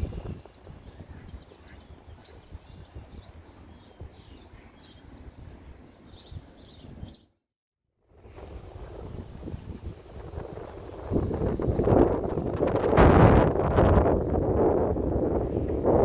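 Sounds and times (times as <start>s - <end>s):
outdoor background noise: 0.0s - 7.4s
small birds chirping: 0.0s - 7.4s.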